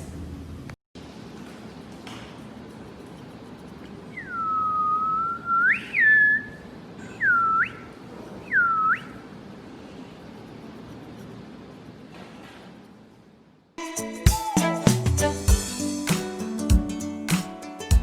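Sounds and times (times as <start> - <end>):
person whistling: 13.8 - 16.3.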